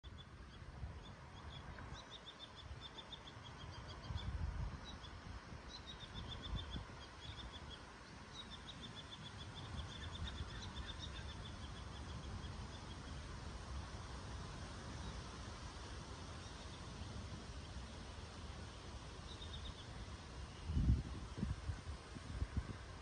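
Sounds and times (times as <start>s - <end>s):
small bird chirping: 0.0s - 13.2s.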